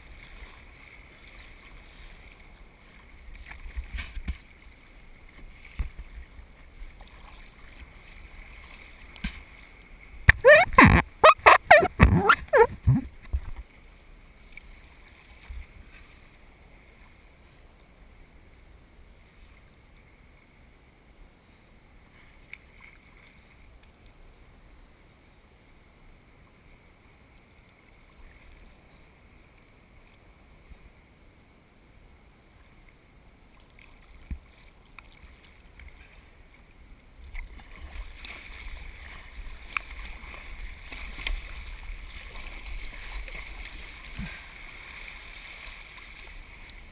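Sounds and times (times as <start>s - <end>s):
faint steady hiss: 0.0s - 46.9s
water splashing on microphone: 10.3s - 13.5s.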